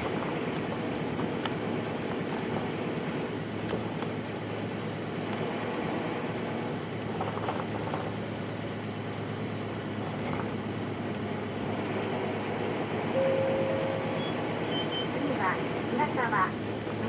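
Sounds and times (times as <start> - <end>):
diesel bus engine hum: 0.0 - 17.0
brief steady whine: 13.1 - 15.1.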